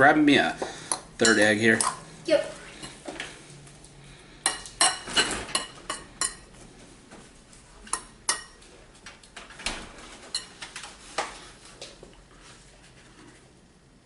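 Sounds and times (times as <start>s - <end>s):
fork clinking against bowl: 0.9s - 2.0s.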